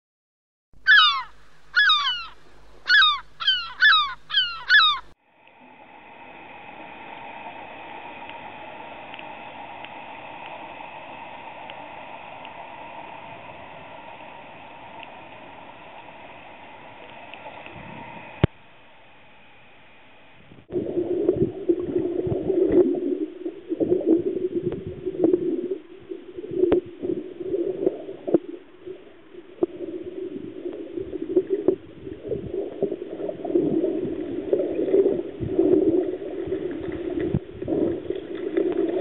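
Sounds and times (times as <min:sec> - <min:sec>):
loud falling bird calls: 0:00.8 - 0:05.2
steady hiss and hum: 0:00.8 - 0:39.0
faint high whine: 0:01.3 - 0:24.6.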